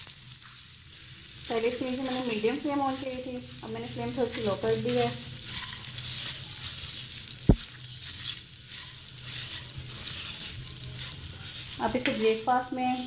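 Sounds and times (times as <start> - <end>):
grain sizzling in a pan: 0.0 - 13.0
spatula scraping a pan: 3.8 - 13.0.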